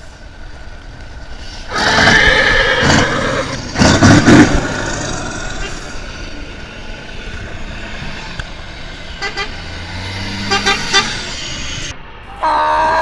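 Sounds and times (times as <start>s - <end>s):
horn toots: 9.2s - 9.7s, 10.3s - 11.3s, 12.3s - 13.0s.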